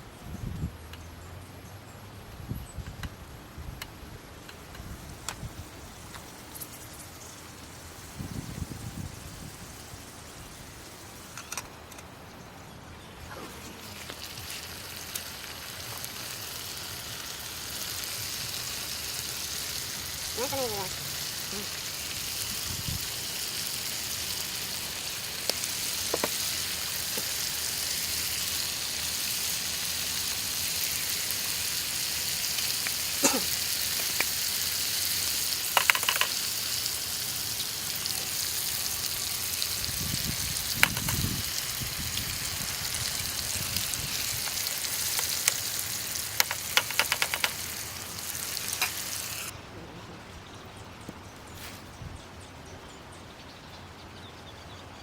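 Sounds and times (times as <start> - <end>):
food sizzling in a pan: 13.4 - 49.5.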